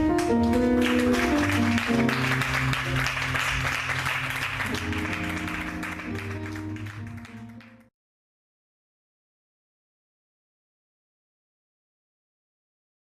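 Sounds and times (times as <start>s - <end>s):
church band instrumental music: 0.0s - 7.8s
congregation clapping: 0.0s - 7.9s.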